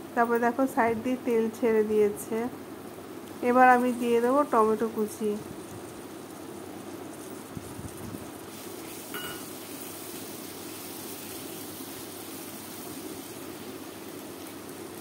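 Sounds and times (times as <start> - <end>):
onions sizzling in oil: 1.1 - 15.0
metal clink: 9.2 - 9.5.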